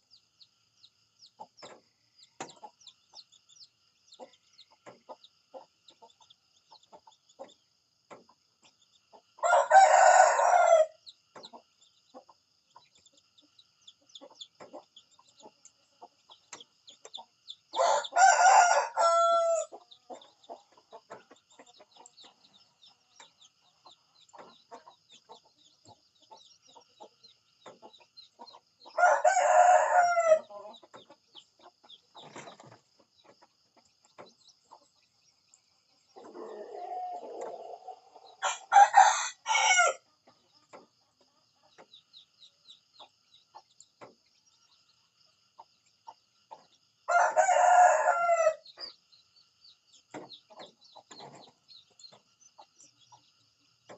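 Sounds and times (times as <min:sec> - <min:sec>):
rooster crowing: 0:09.4 - 0:11.0, 0:17.7 - 0:19.7, 0:29.0 - 0:30.6, 0:36.2 - 0:40.0, 0:47.1 - 0:48.6.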